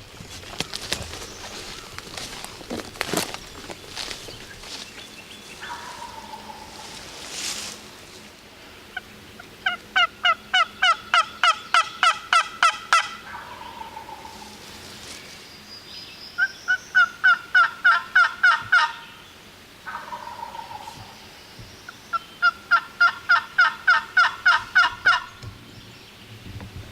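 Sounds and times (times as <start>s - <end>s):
lower turkey calls: 5.4s - 7.5s, 8.9s - 14.8s, 16.4s - 25.6s
turkey yelping: 5.6s - 7.0s, 9.0s - 14.6s, 16.4s - 19.0s, 19.9s - 21.1s, 22.1s - 25.3s.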